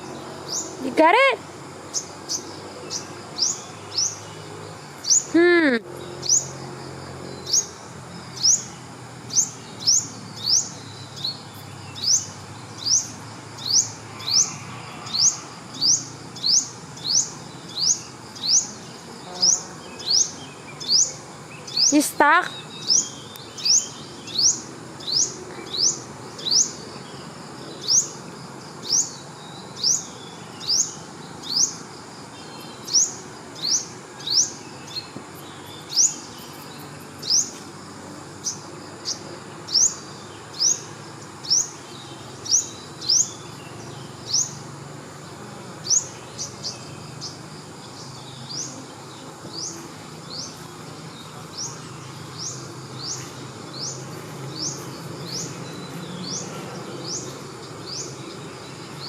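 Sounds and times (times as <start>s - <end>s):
steady outdoor hiss: 0.0s - 59.0s
high rising animal chirp: 9.3s - 26.8s.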